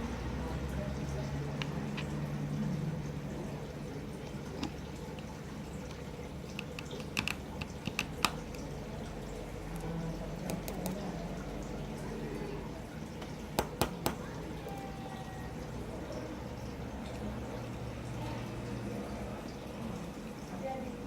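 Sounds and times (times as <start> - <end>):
small tools clicking and tapping: 4.6 - 8.6.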